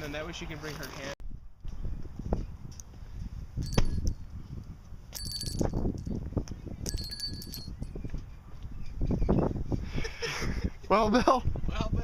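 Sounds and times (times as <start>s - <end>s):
short metallic rings: 3.6s - 4.3s, 5.1s - 6.2s, 6.9s - 8.0s.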